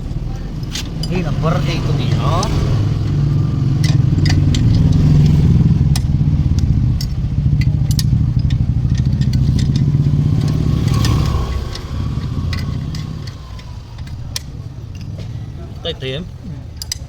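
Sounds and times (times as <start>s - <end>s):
motorcycle engine rumbling: 0.0s - 17.0s
metallic clinks of tools: 6.9s - 15.2s.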